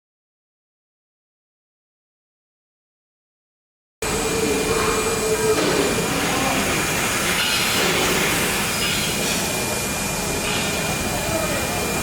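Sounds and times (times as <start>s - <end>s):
cnc router spindle whine: 4.0s - 12.0s.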